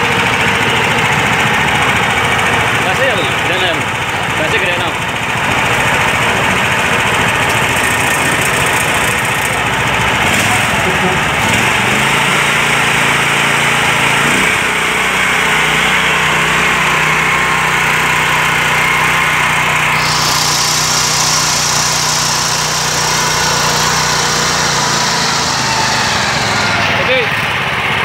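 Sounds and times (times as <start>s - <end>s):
single-cylinder engine running: 0.0s - 28.0s.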